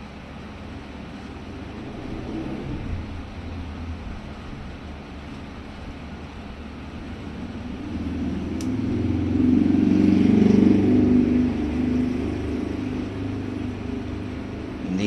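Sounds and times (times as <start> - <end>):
vehicle passing by: 0.7 - 15.0.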